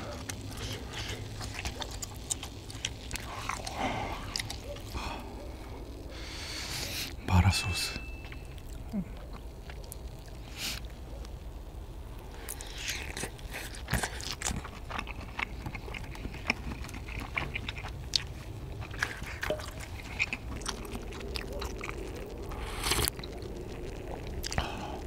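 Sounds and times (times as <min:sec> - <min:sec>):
wet chewing clicks: 0:00.0 - 0:07.2, 0:08.2 - 0:11.5, 0:12.1 - 0:25.0
slurping broth: 0:18.8 - 0:25.0.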